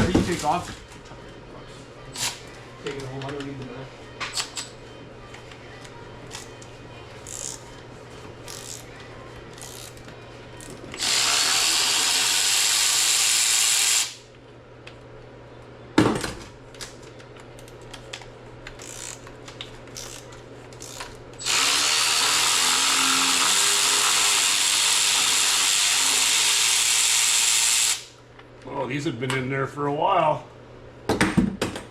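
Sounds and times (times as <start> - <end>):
power tool spinning bolts: 11.0 - 14.2, 20.8 - 28.1.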